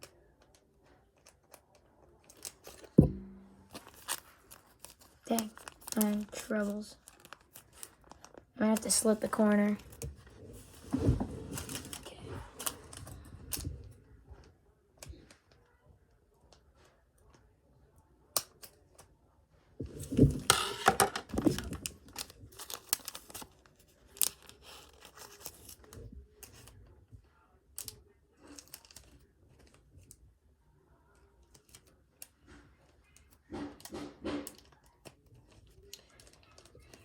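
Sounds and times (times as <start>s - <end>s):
packaging clicks and rustles: 3.6s - 10.9s, 20.0s - 26.8s, 27.8s - 30.2s, 34.5s - 37.0s
card packaging tearing: 20.7s - 25.9s.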